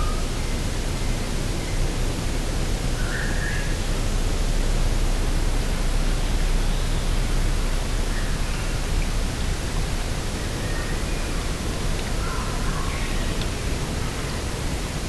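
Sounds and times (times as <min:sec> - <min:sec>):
wind noise: 0:00.0 - 0:15.0
faint bird calls: 0:10.3 - 0:14.4.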